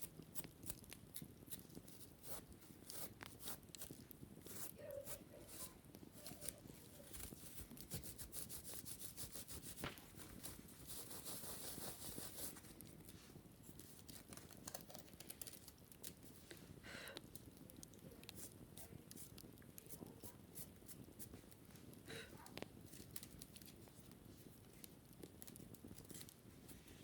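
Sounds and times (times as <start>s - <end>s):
scratching on wicker basket: 0.0s - 16.7s, 17.3s - 27.0s.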